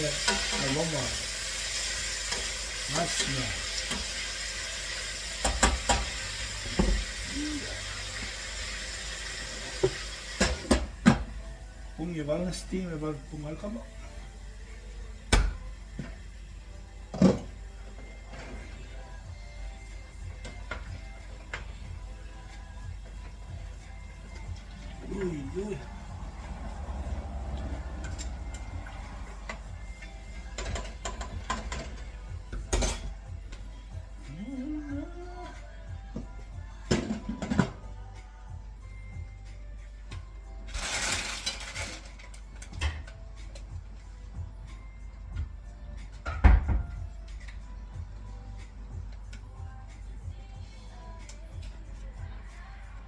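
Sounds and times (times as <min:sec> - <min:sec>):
food sizzling in oil: 0:00.0 - 0:11.0
utensils clattering against pan: 0:00.1 - 0:01.0, 0:30.4 - 0:33.2, 0:40.7 - 0:43.1.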